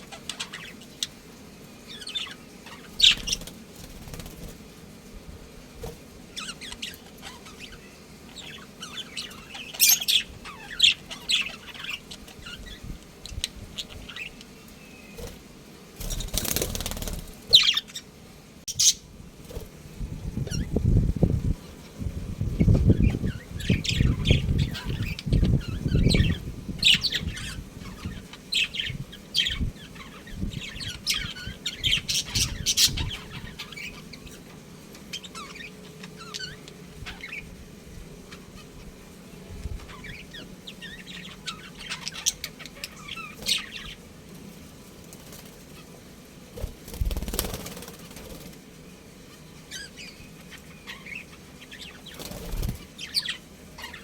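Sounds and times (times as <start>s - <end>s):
budgies chirping: 0.0s - 4.6s, 6.3s - 15.4s, 16.0s - 18.1s, 18.7s - 19.6s, 22.4s - 37.6s, 38.2s - 44.1s, 49.2s - 54.0s
wings fluttering: 0.0s - 5.0s, 5.7s - 18.0s, 18.7s - 37.5s, 39.6s - 54.0s.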